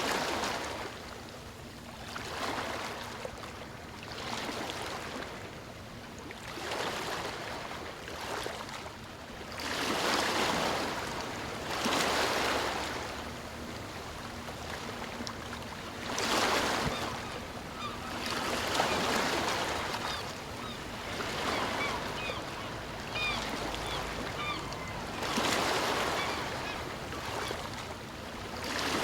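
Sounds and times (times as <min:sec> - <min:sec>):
sea waves washing in: 0:09.5 - 0:29.0.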